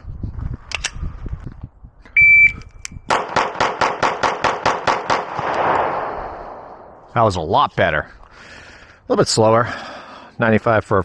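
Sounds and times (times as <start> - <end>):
shot timer beep: 2.2 - 2.7
rapid pistol shots: 3.1 - 7.0.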